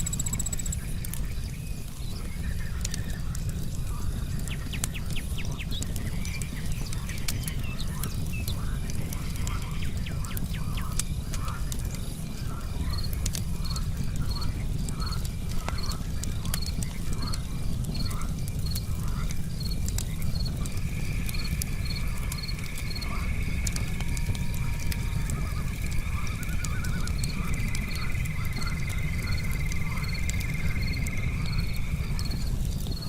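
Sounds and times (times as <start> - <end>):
crickets chirping: 0.0 - 0.9, 19.5 - 33.0
campfire crackling and popping: 0.0 - 33.0
frogs croaking: 0.0 - 33.0.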